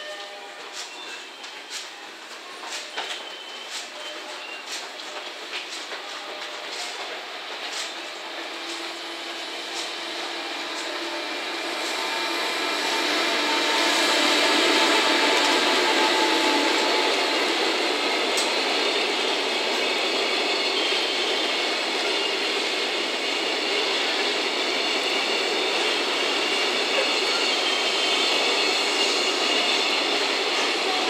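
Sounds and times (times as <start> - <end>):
freight train running noise: 0.0 - 31.0.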